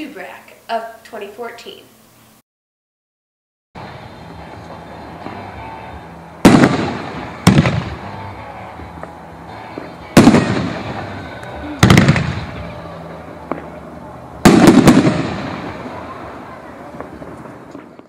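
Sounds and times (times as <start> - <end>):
firework booms with rumble: 6.4 - 8.2, 10.2 - 11.2, 11.8 - 12.8, 14.4 - 18.0.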